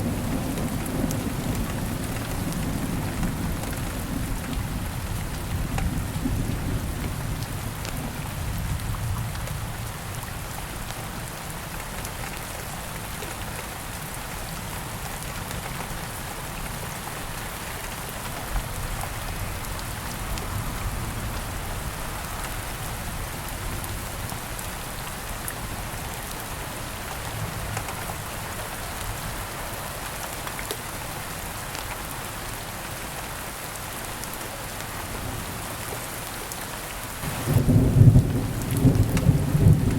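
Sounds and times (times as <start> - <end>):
low rumble of thunder: 0.0 - 10.5, 37.2 - 39.9
steady rain falling: 0.0 - 39.9.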